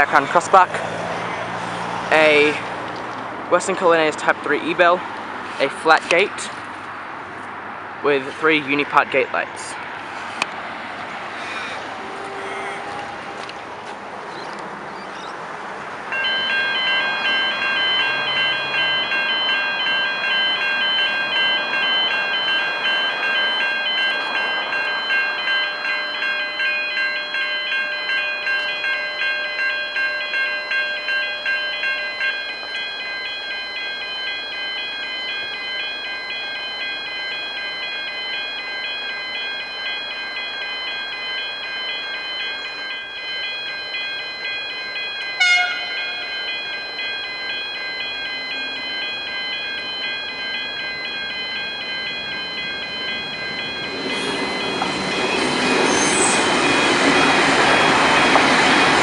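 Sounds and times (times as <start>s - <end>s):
level crossing bells ringing: 0.0s - 59.0s
train horn blast: 12.0s - 13.5s, 45.4s - 45.9s.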